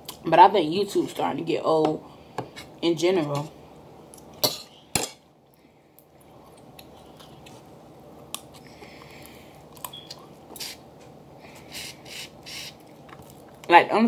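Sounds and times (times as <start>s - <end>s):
low room hum: 0.0s - 14.0s
chewing and mouth smacks: 5.5s - 10.8s.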